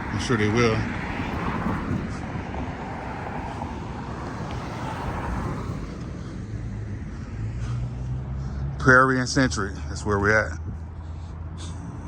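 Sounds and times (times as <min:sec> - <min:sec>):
vehicle noise rush: 0:00.0 - 0:12.0.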